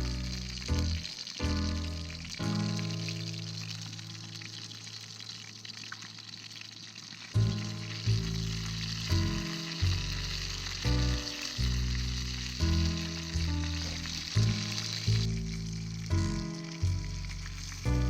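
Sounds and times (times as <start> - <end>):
food sizzling over campfire: 0.0 - 18.0
music with bass beat: 7.4 - 18.0.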